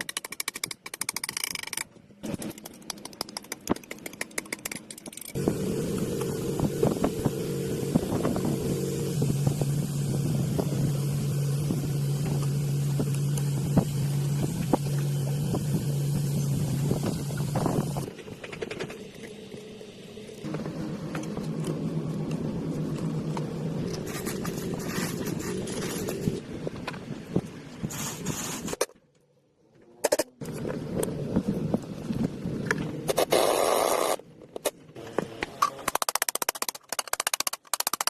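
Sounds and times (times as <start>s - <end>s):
small engine running: 5.4s - 21.4s.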